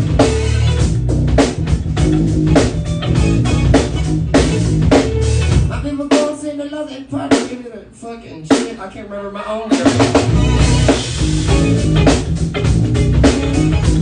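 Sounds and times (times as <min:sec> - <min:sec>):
bass line: 0:00.0 - 0:06.1, 0:09.7 - 0:14.0
drum kit with rimshots: 0:00.0 - 0:06.5, 0:07.1 - 0:07.7, 0:08.4 - 0:09.0, 0:09.7 - 0:14.0
guitar: 0:00.0 - 0:14.0.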